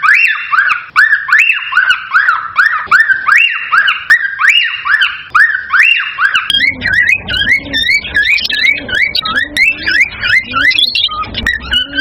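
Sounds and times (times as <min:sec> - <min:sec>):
cockatiels whistling: 0:00.0 - 0:12.0
low rumble: 0:06.5 - 0:11.8.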